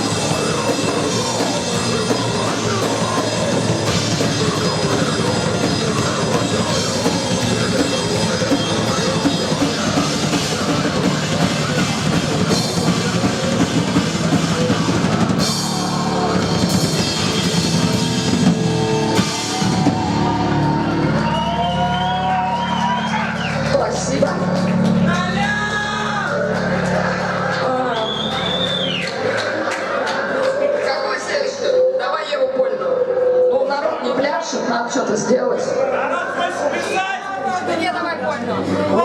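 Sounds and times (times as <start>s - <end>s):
drum kit pounding: 0.0s - 30.4s
rock band playing loudly: 0.0s - 30.9s.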